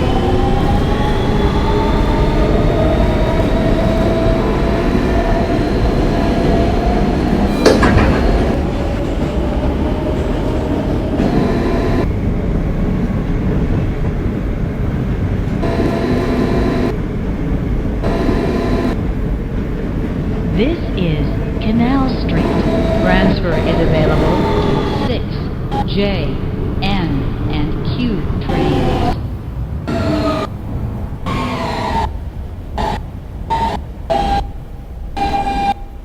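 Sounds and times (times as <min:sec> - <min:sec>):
traction motors whining: 0:00.0 - 0:12.2, 0:15.5 - 0:19.1, 0:20.5 - 0:26.8, 0:29.9 - 0:36.0
wheels rumbling on rails: 0:00.0 - 0:36.0.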